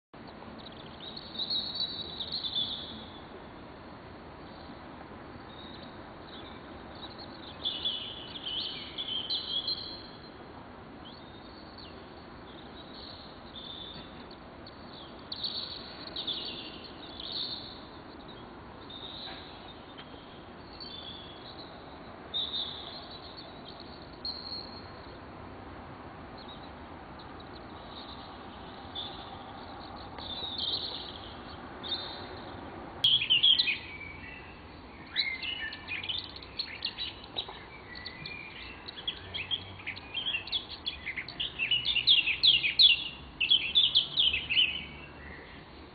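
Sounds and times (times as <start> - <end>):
birds singing and chirping: 0.2 - 3.7, 5.4 - 25.4, 26.3 - 45.8
steady background noise: 0.2 - 45.9.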